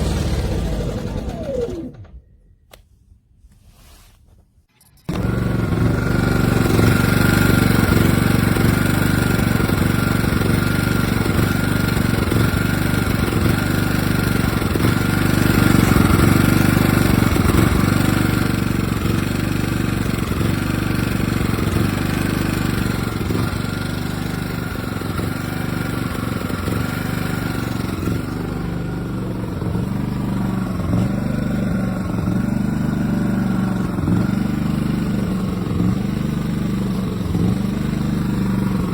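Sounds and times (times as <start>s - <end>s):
petrol generator running: 0.0s - 2.4s, 5.0s - 38.9s.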